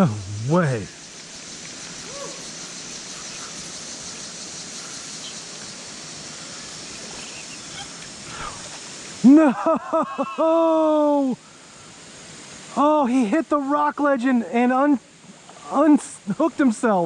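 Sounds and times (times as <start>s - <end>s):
water pouring into creek: 0.0s - 9.2s.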